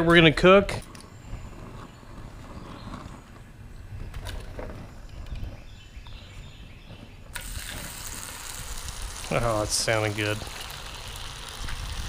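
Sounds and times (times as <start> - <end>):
fish sizzling in hot oil: 7.4 - 12.0.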